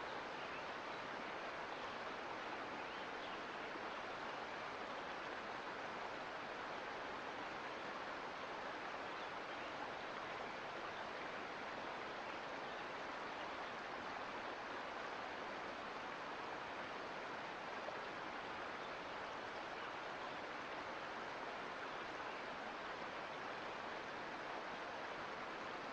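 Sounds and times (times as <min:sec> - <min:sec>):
creek water flowing: 0:00.0 - 0:25.9.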